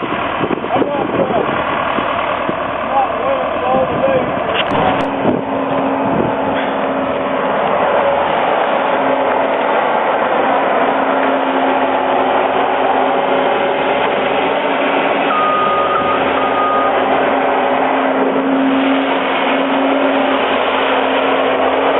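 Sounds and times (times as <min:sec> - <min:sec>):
vehicle engine running: 0:00.0 - 0:21.9
high beep tone: 0:15.3 - 0:17.1.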